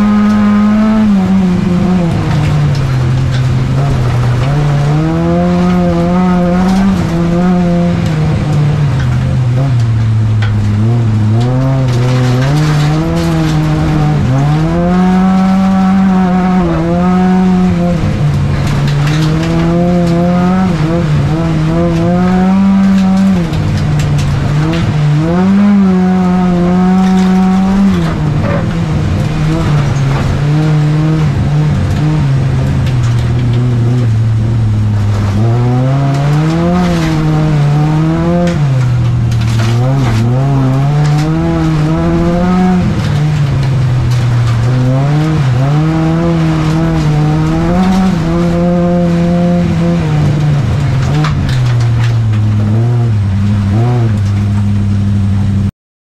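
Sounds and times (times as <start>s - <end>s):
car engine revving: 0.0s - 55.7s.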